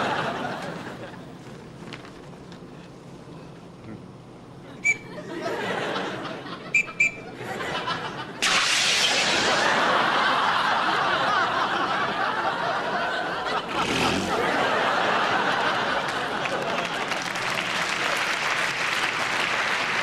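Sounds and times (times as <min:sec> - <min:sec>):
studio audience laughter: 0:00.0 - 0:01.2, 0:05.0 - 0:17.7.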